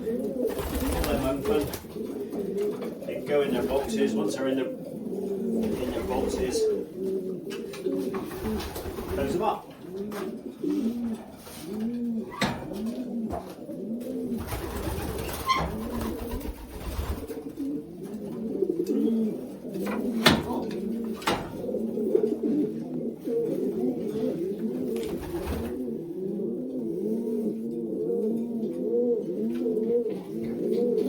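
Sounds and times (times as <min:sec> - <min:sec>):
pigeons cooing: 0:00.0 - 0:31.0
sharp knocks: 0:19.9 - 0:21.6.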